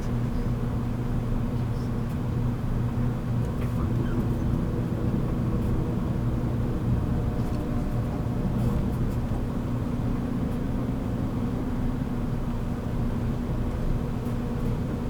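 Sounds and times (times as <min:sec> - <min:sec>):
train car hum and rumble: 0:00.0 - 0:15.0.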